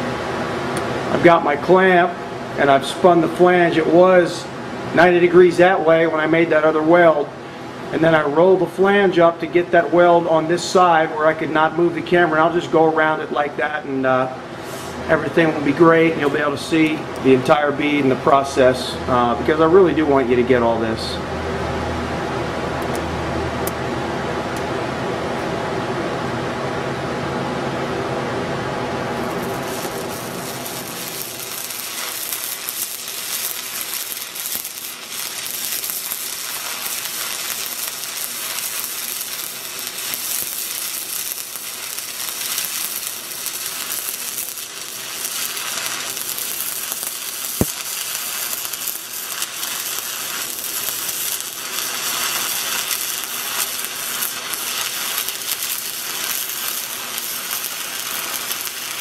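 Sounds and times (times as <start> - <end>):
welding arc crackling and sizzling: 29.0 - 59.0.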